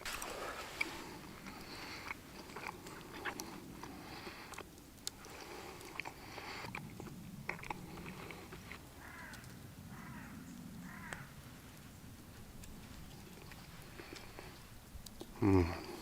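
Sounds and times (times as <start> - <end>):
person chewing: 0.0 - 9.4, 12.6 - 16.0
mouth clicks: 0.1 - 9.6.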